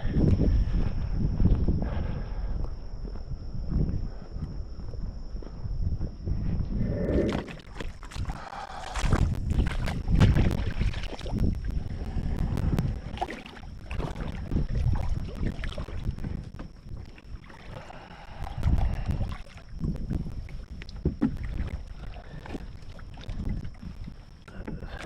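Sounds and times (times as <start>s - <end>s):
wind buffeting microphone: 0.0s - 25.0s
water splashing: 7.1s - 25.0s.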